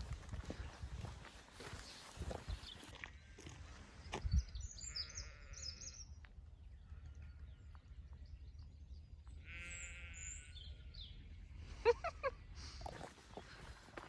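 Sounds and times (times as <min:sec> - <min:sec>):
small birds chirping: 0:00.3 - 0:14.0
goat bleating: 0:09.5 - 0:10.5.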